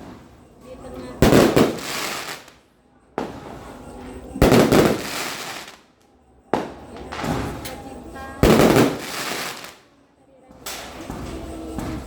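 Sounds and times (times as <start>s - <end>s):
fireworks banging: 0.0s - 2.6s, 3.2s - 5.9s, 6.5s - 9.9s
fireworks crackling hiss: 1.2s - 2.6s, 3.2s - 5.8s, 8.4s - 9.8s.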